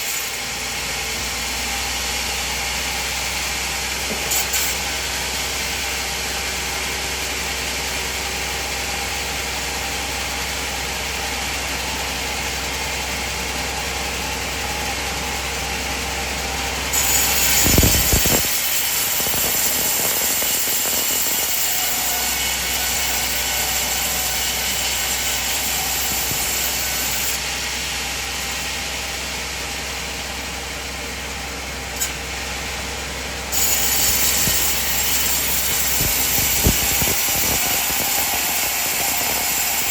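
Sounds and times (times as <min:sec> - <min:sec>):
saw blade cutting log: 0:00.0 - 0:09.1, 0:16.6 - 0:29.3, 0:33.5 - 0:39.9
band saw running: 0:00.0 - 0:39.9.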